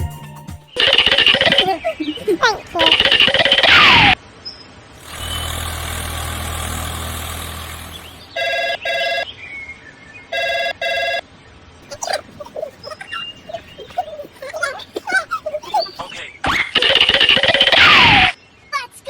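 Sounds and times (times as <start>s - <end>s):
chirping calls: 0.8s - 4.2s, 11.8s - 18.4s
mechanical hum: 4.9s - 9.2s
electronic ringing tones: 8.4s - 9.3s, 10.3s - 11.2s.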